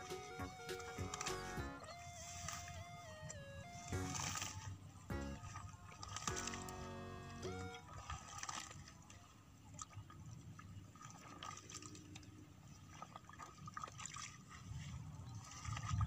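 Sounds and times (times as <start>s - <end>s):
small drips and slaps: 9.8s - 14.7s.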